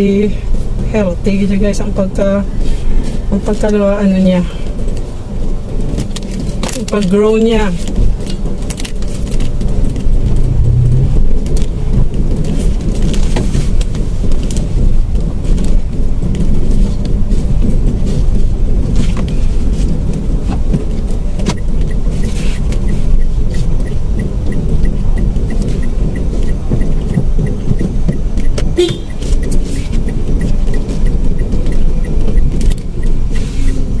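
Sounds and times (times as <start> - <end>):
car engine and tyre rumble: 0.0 - 34.0
faint even ticking: 22.7 - 33.9.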